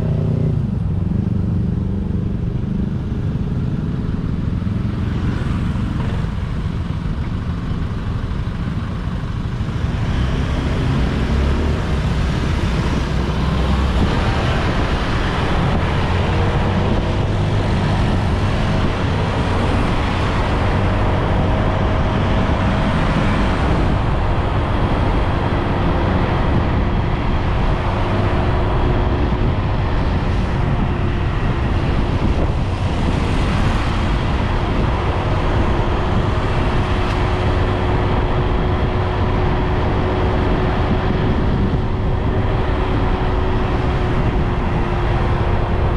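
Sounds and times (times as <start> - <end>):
road and traffic noise: 0.0 - 45.9.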